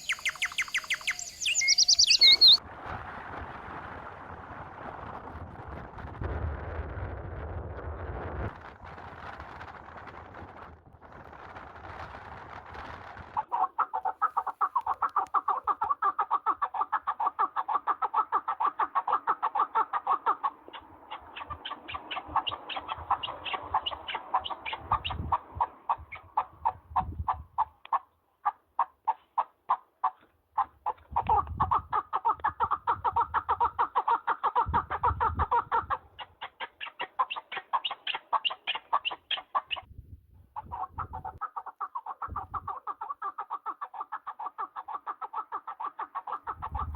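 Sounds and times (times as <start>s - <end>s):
partridge clucking calls: 0.0s - 2.6s, 13.4s - 39.9s, 40.6s - 46.9s.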